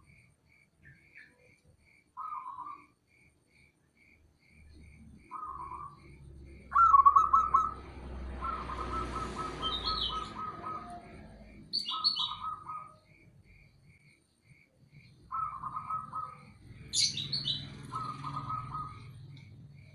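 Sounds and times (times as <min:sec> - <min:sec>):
high bird chirps: 0:02.2 - 0:03.0, 0:05.0 - 0:13.3, 0:15.0 - 0:19.6
dove cooing: 0:05.2 - 0:13.1, 0:15.3 - 0:19.9.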